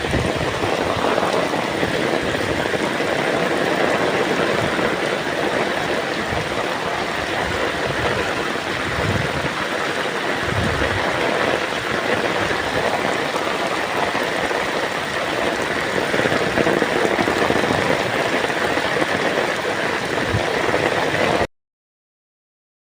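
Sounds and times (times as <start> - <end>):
low rumbles: 0.0 - 18.2
torrential rain hissing: 0.0 - 21.5.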